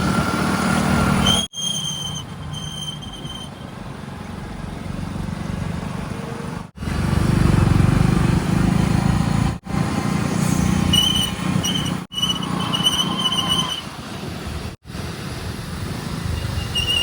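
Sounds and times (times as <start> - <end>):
diesel machinery engines running: 0.0 - 17.0
high-pitched tone in short spurts: 1.2 - 3.7, 10.4 - 14.0.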